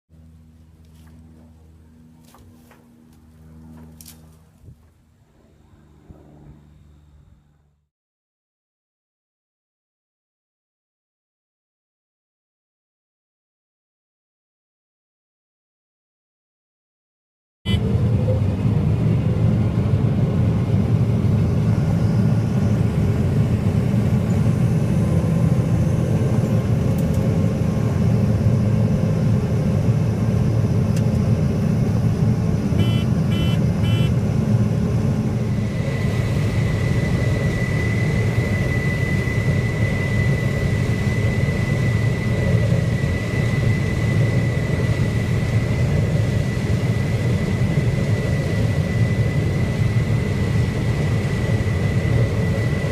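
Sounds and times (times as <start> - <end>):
combine harvester rumbling: 0.2 - 7.7, 17.7 - 48.0
steady high whine: 0.2 - 7.9, 17.7 - 52.9
short high beeps: 32.8 - 34.1.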